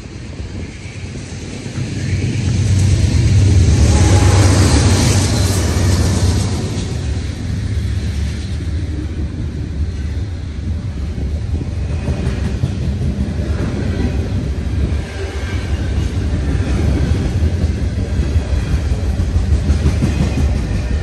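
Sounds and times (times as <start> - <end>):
freight train rumbling past: 0.0 - 21.0
wheels clickety-clack: 10.7 - 14.4, 15.9 - 21.0.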